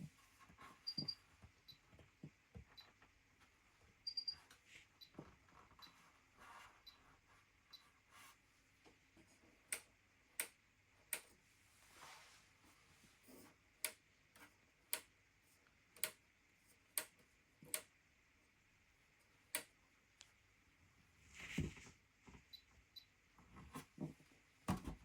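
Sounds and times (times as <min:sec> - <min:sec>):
washing machine control clicks: 0:16.0 - 0:16.2.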